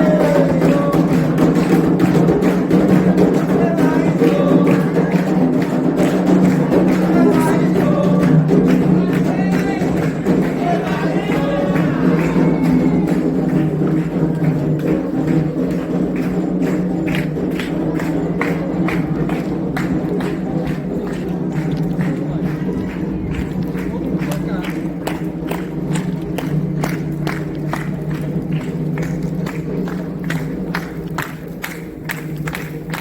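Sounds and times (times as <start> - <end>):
group singing: 0.0 - 13.4
ritual percussion: 0.0 - 33.0.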